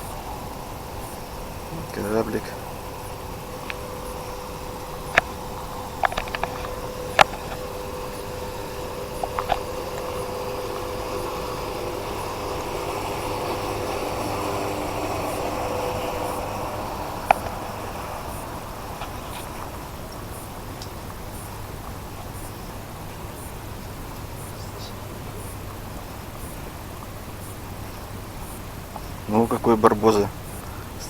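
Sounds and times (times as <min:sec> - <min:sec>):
sharp clicks: 0:00.0 - 0:21.6
motor humming: 0:00.0 - 0:31.0.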